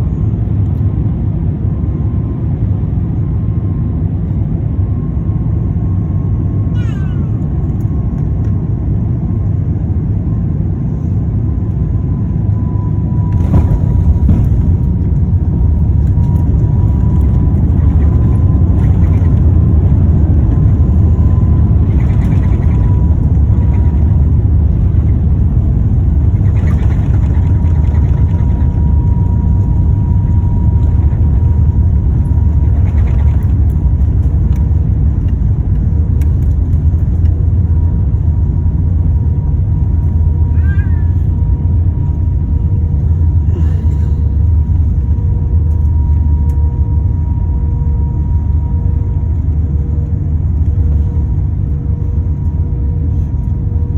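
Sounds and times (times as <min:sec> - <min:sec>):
jet engine rumble: 0:00.0 - 0:53.9
thin steady whine: 0:12.1 - 0:53.9.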